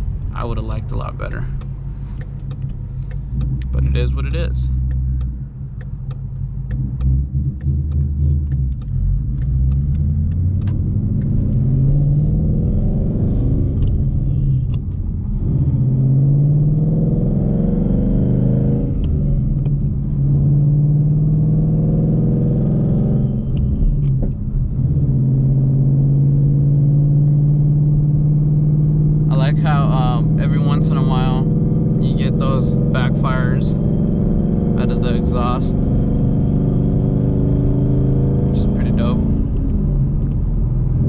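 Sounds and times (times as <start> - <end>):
sharp clicks and pops: 0.0 - 15.9, 18.6 - 20.8, 22.9 - 25.2, 38.8 - 41.0
car engine accelerating: 0.0 - 41.0.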